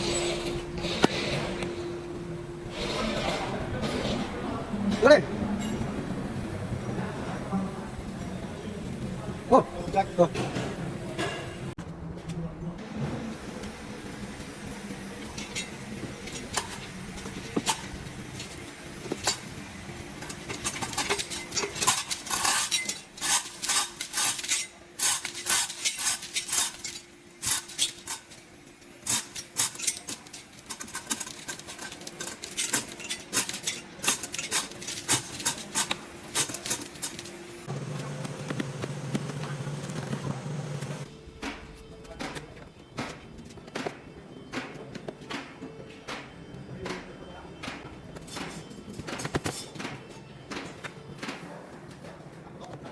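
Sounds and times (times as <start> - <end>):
metal tools clinking: 15.2 - 38.2.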